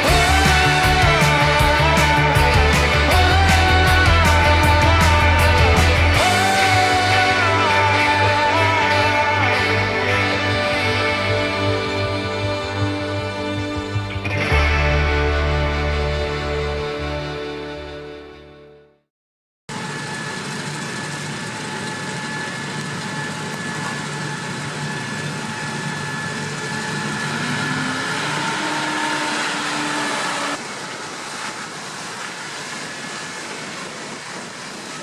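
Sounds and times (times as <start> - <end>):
heavy machinery engine running: 0.0 - 16.3, 19.7 - 35.0
steady whine: 0.0 - 18.2, 19.7 - 35.0
rising tone: 19.7 - 31.0.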